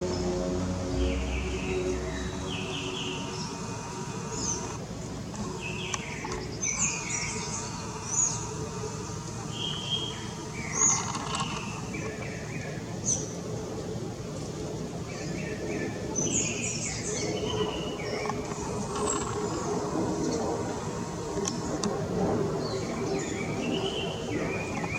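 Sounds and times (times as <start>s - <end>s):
birds chirping: 0.0s - 13.2s
low background noise: 0.0s - 24.9s.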